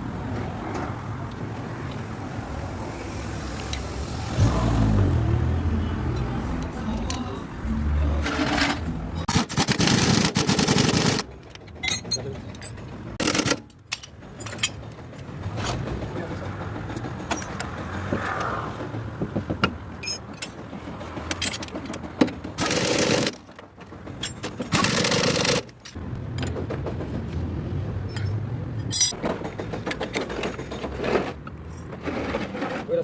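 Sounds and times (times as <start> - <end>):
metal tools clinking: 11.0 - 15.3, 19.9 - 26.6, 28.0 - 29.2.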